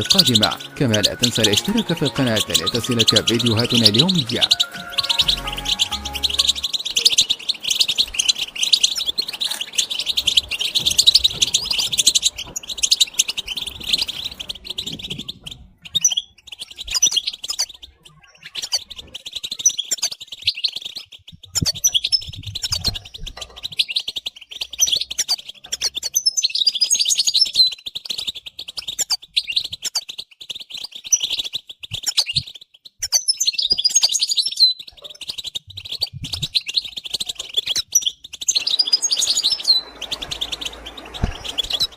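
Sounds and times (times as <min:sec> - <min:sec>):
sharp high bird squeaks: 0:00.0 - 0:09.8
finches twittering: 0:00.0 - 0:26.8, 0:30.5 - 0:41.9.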